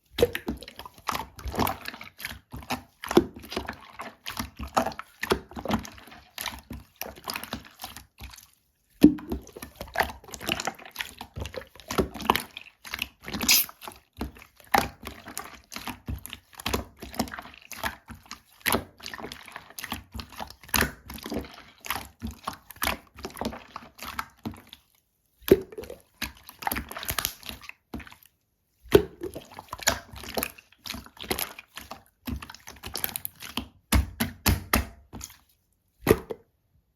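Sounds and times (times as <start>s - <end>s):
slime squelching and clicking: 13.5s - 13.7s.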